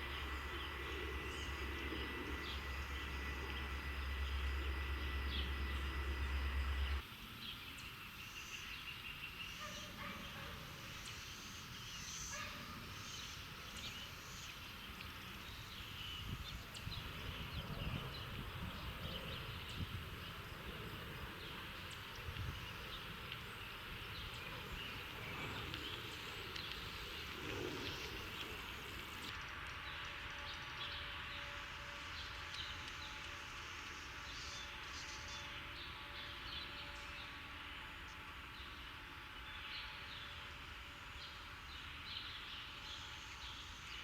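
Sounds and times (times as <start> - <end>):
low city rumble: 0.0 - 7.1, 10.0 - 30.3
sparrows chirping: 7.4 - 29.3.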